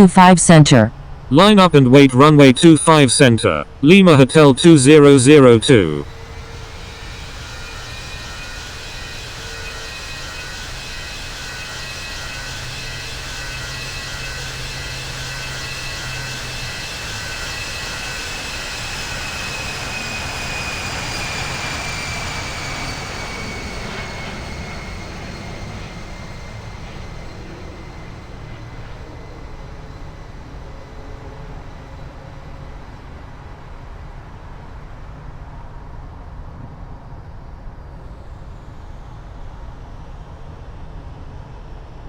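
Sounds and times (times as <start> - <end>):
high engine whine: 0.0 - 42.0
jet airliner passing: 2.6 - 34.8.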